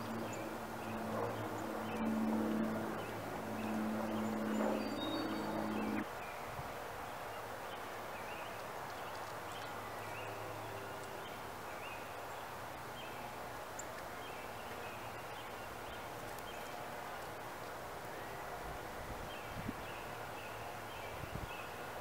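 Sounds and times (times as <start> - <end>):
small birds chirping: 0.0 - 6.4
ambient hiss: 0.0 - 22.0.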